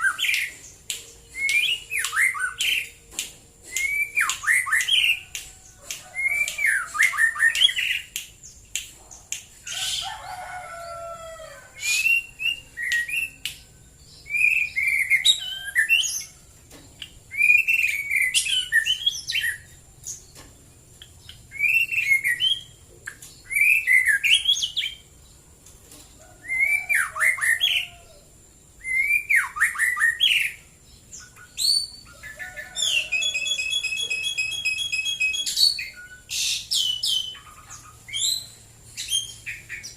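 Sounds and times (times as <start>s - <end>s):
bird whistling song: 0.0s - 3.0s, 3.6s - 8.2s, 11.8s - 16.4s, 17.0s - 19.7s, 21.1s - 25.0s, 26.4s - 28.0s, 28.8s - 30.6s, 31.2s - 39.9s
bird sharp clicks: 0.8s - 9.5s.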